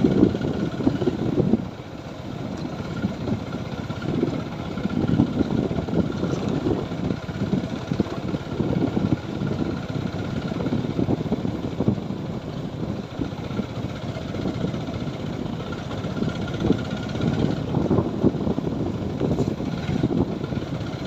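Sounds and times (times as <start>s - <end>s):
motorcycle engine rumbling: 0.0s - 21.0s.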